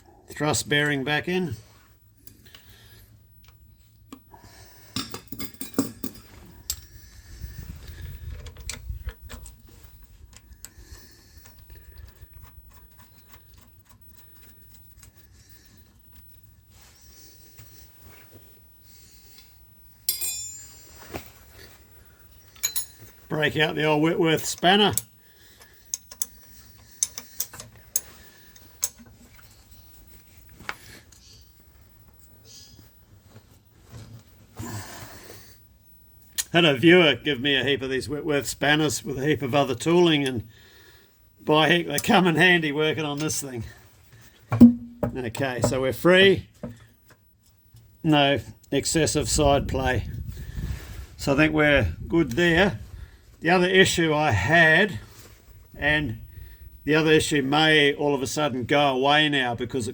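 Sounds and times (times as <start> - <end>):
spanner clinking on metal: 5.0 - 6.9, 20.0 - 20.9, 22.5 - 23.2, 25.8 - 29.1
steel machine parts clinking: 20.1 - 20.9, 22.5 - 23.2.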